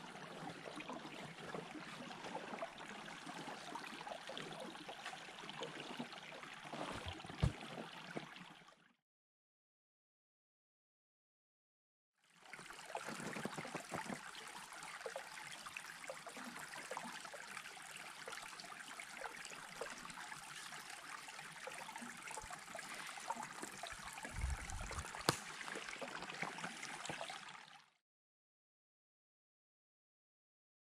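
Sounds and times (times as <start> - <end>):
stream trickling: 0.0 - 8.9, 12.2 - 28.0.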